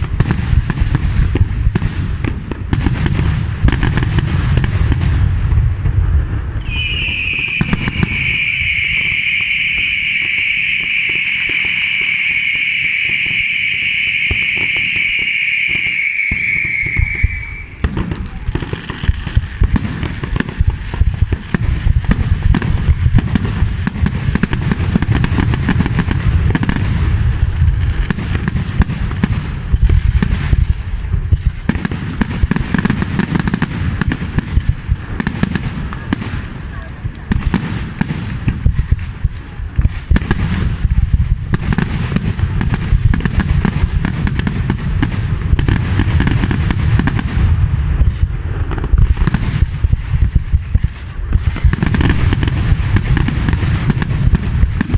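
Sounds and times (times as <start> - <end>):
firework shrill whistle: 6.6 - 18.7.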